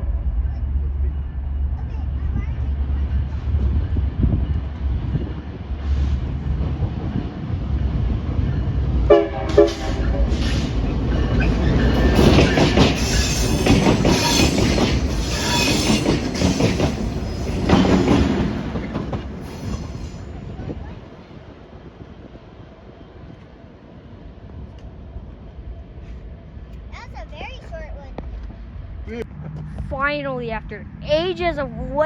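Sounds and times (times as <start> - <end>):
locomotive rumble: 0.0 - 32.0
rail clatter: 2.2 - 21.4
train horn toots: 9.1 - 10.4
wheel squeal: 10.4 - 17.7.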